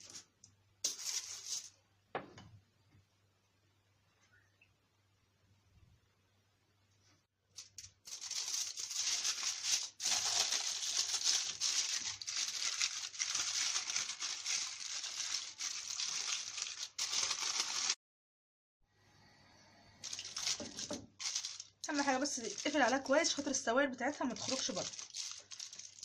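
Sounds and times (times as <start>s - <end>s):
aluminium foil crinkling: 0.0s - 1.8s, 7.5s - 18.0s, 20.0s - 26.0s.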